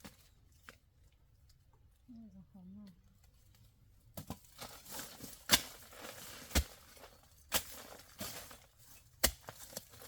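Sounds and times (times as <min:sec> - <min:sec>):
rustling and scraping: 0:03.2 - 0:10.0.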